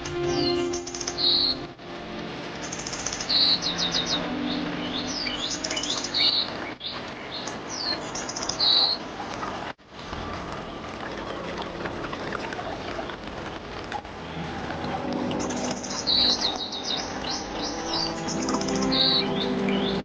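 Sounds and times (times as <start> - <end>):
songbirds chirping and whistling: 0.0 - 1.7, 2.6 - 9.6, 14.3 - 20.0
running water: 0.0 - 20.0.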